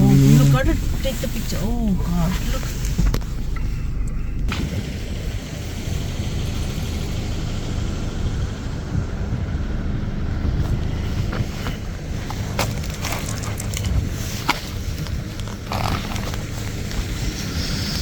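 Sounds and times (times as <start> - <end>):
crunches and clicks on ice: 12.5 - 18.0.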